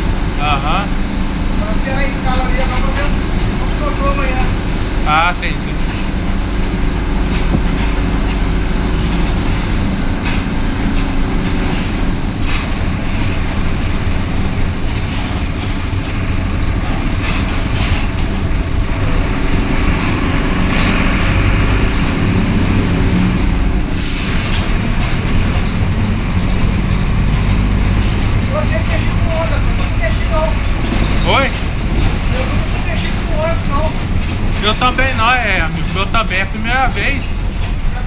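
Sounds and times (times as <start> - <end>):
bus cabin noise: 0.0 - 38.0
diesel bus engine humming: 0.0 - 38.0
air hiss burst: 24.0 - 24.6.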